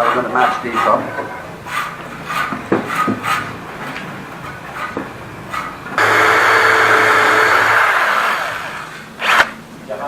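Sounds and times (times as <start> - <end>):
power tool motor running: 6.0 - 9.6.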